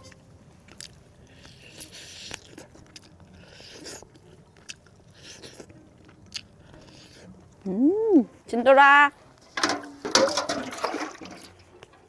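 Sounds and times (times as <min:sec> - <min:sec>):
crunchy chewing: 0:00.5 - 0:07.7.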